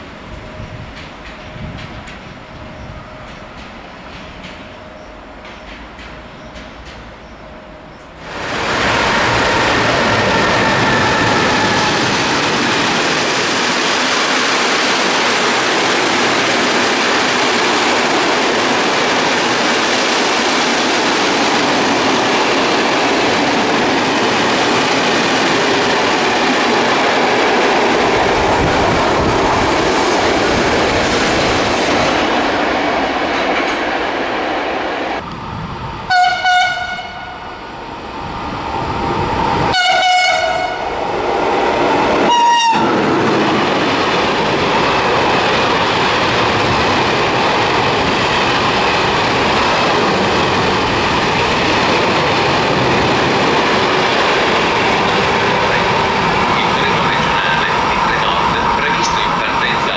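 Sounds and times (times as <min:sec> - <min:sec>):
train wheels rumbling and clattering: 0:00.0 - 0:37.1, 0:38.1 - 0:59.9
locomotive horn blasts: 0:36.1 - 0:37.4, 0:39.7 - 0:40.8, 0:42.3 - 0:43.0.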